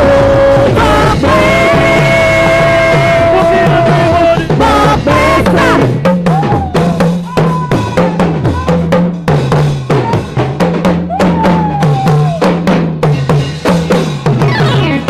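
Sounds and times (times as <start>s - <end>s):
long held higher notes: 0.0s - 6.9s
stepping bass line: 0.0s - 9.0s, 13.2s - 15.0s
drum kit beat: 0.0s - 15.0s.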